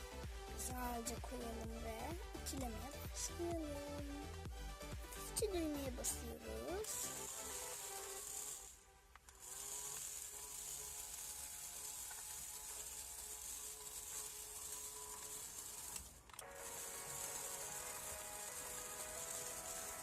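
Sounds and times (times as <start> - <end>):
toy iron hissing steam sound: 5.8 - 8.8, 9.4 - 20.0.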